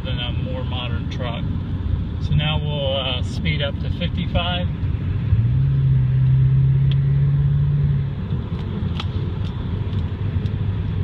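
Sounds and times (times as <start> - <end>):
road and tyre rumble: 0.0 - 11.0
truck engine drone: 3.9 - 11.0.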